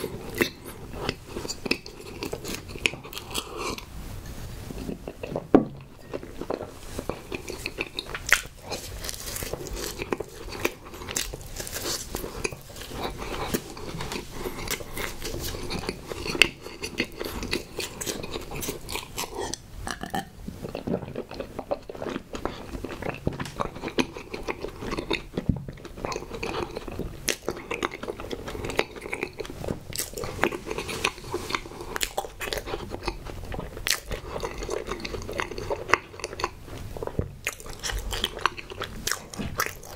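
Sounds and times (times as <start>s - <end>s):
wet chewing and smacking: 0.0s - 3.9s, 4.7s - 39.9s.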